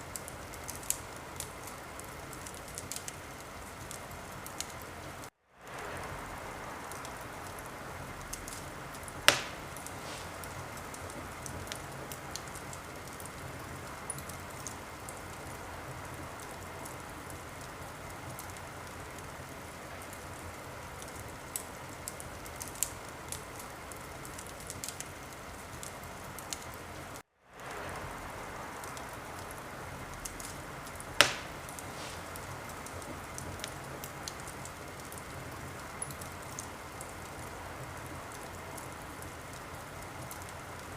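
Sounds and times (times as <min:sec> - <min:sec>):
wood fire crackling: 0:00.0 - 0:40.9
loud sharp fire pops: 0:08.3 - 0:13.4, 0:30.2 - 0:35.3.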